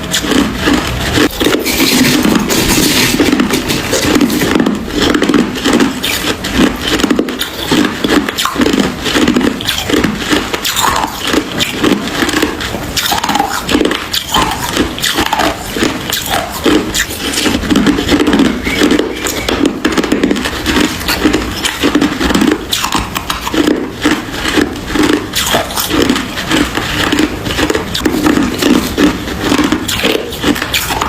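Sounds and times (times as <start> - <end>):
ice being chewed: 0.0 - 31.0.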